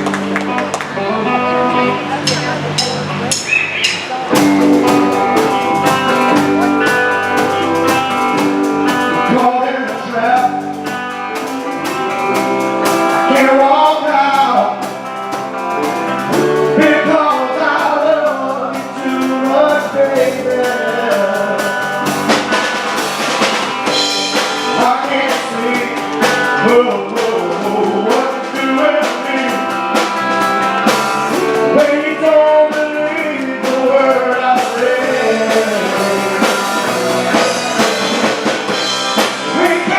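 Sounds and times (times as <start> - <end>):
drums: 0.0 - 39.9
electric guitar: 0.0 - 39.9
person singing: 4.1 - 14.9, 16.3 - 22.3, 24.3 - 30.2, 31.3 - 39.9.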